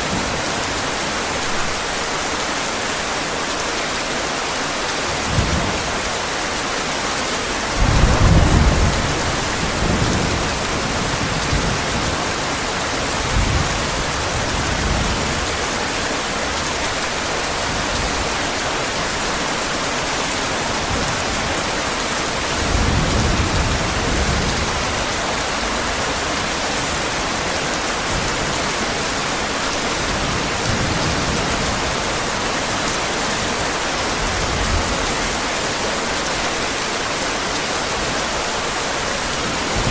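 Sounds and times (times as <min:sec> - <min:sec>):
heavy rain: 0:00.0 - 0:39.9
thunder rolling: 0:07.7 - 0:12.2.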